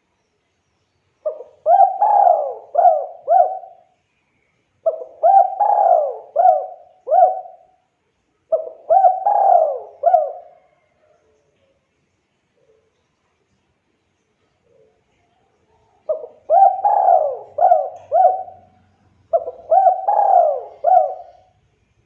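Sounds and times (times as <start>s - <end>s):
dove cooing: 1.2s - 3.9s, 4.8s - 7.7s, 8.5s - 11.2s, 16.0s - 21.6s.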